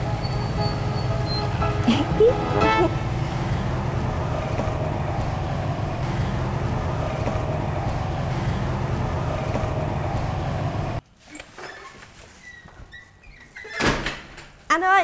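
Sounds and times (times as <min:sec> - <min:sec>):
low rumble of city traffic: 0:00.0 - 0:11.1.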